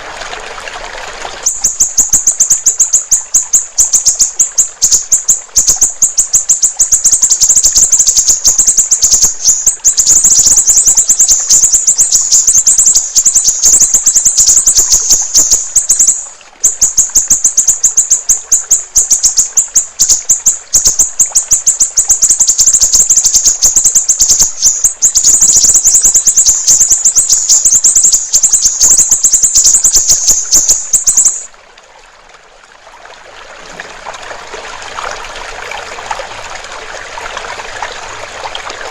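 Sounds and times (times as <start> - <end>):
faint running water: 0.0 - 38.9
songbird rapid trill: 1.4 - 31.5.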